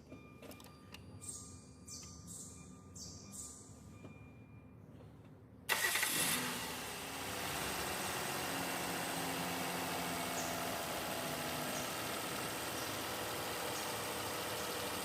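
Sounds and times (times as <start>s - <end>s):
car engine starting and idling: 5.6s - 15.0s.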